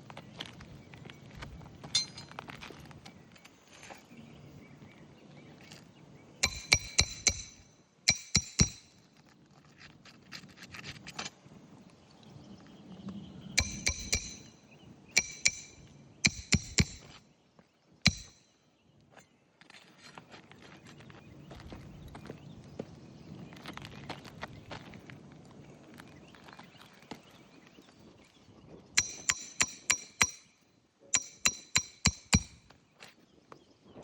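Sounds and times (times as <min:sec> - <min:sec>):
hammer striking roofing nails: 0:06.4 - 0:08.9, 0:13.6 - 0:14.5, 0:15.2 - 0:17.2, 0:18.1 - 0:18.4, 0:29.0 - 0:30.5, 0:31.2 - 0:32.6.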